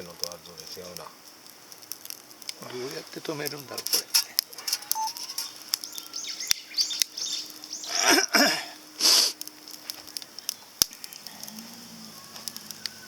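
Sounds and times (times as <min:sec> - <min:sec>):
wood fire crackling and popping: 0:00.0 - 0:13.0
bird chirps: 0:04.6 - 0:08.3.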